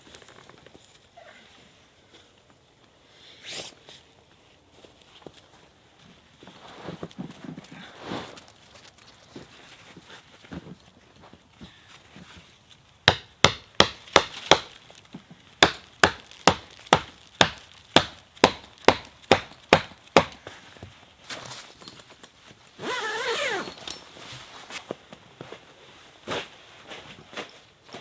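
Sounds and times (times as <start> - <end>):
axe chopping wood: 13.1 - 14.8, 15.6 - 20.4.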